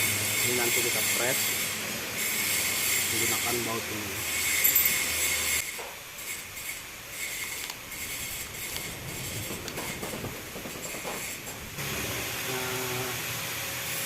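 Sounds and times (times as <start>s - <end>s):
metallic clicks and scraping: 4.4s - 11.7s
steady hiss: 5.6s - 14.0s.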